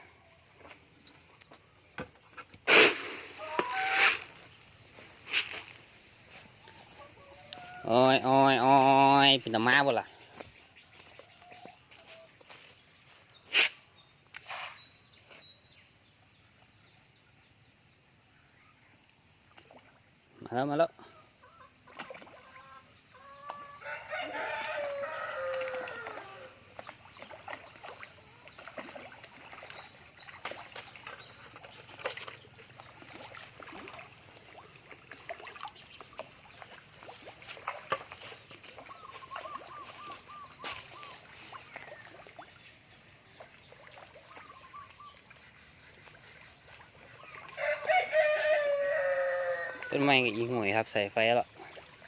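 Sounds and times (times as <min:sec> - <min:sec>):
high-pitched hiss: 0:02.6 - 0:05.8
rooster crowing: 0:23.3 - 0:26.6, 0:47.6 - 0:50.0.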